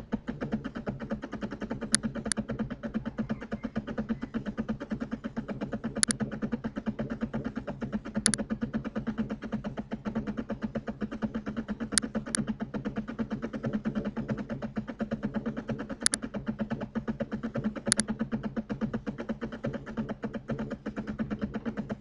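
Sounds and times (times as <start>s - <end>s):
pulsing mechanical hum: 0.0s - 22.0s
computer mouse clicking: 0.3s - 2.5s, 5.9s - 6.3s, 8.2s - 8.5s, 11.8s - 12.5s, 15.6s - 16.3s, 17.5s - 18.2s.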